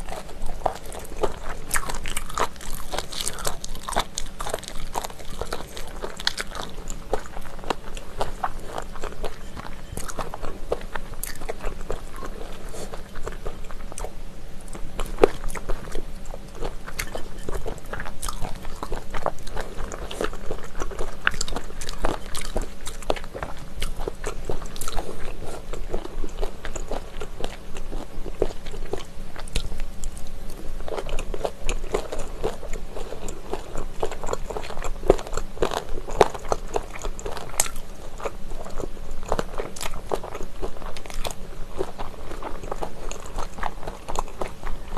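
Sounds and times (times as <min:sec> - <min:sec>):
crunching cartilage: 0:00.0 - 0:44.9
wet chewing: 0:00.0 - 0:44.9.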